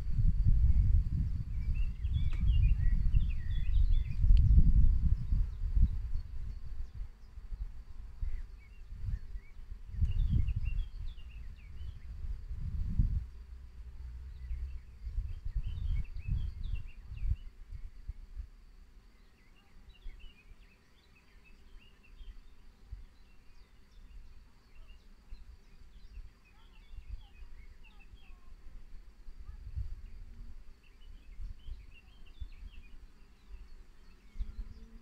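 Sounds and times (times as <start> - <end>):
small birds chirping: 0.0 - 13.6, 14.2 - 35.0
wind on microphone: 0.0 - 18.6, 25.9 - 35.0.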